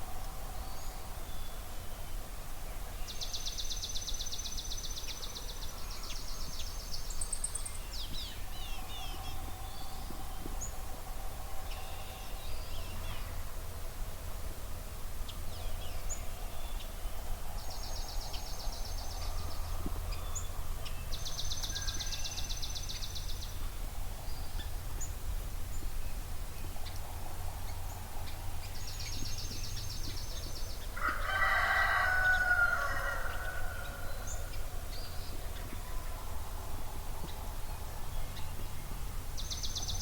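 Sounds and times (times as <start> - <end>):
rooster crowing: 31.0 - 34.5.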